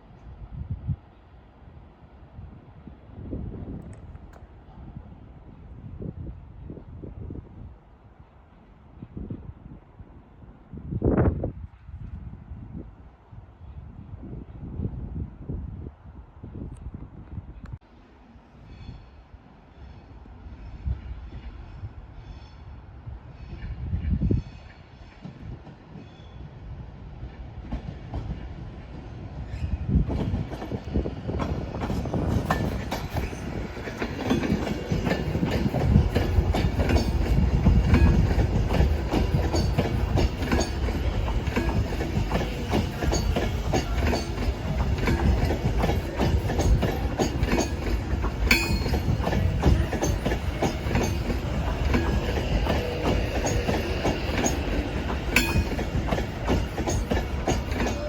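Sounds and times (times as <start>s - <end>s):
train wheels clattering over rails: 30.0s - 58.0s.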